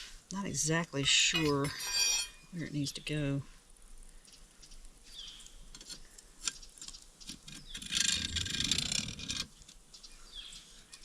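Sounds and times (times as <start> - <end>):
metal stake scraping into ground: 1.4 - 2.5
bird chirp: 4.2 - 8.4, 9.8 - 11.0.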